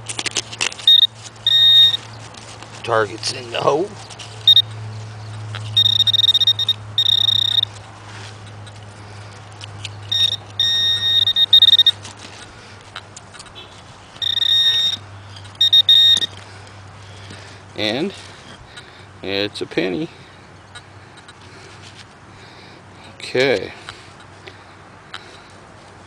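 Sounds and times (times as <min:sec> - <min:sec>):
pinpointer electronic buzz: 0:00.8 - 0:02.0, 0:04.4 - 0:04.7, 0:05.7 - 0:07.7, 0:10.1 - 0:12.0, 0:14.2 - 0:16.3.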